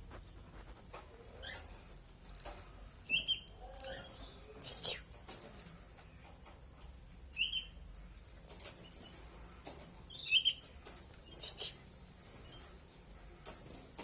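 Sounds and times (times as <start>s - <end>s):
bird chirping: 3.0s - 8.0s, 10.1s - 11.8s.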